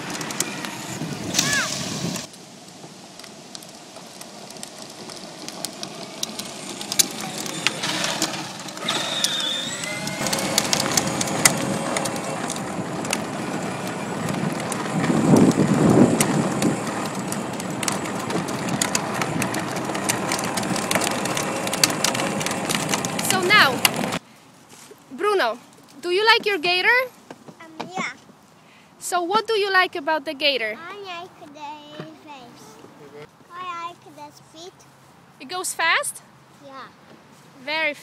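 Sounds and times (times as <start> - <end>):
toy vehicle wheels crunching and rattling: 0.0 - 26.4.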